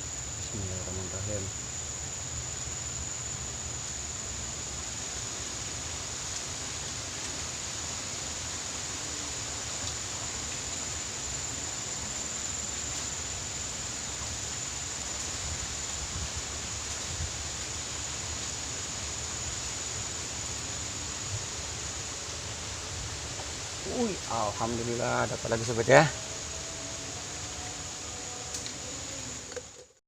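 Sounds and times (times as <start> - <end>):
thin high-pitched whine: 19.2 - 30.0.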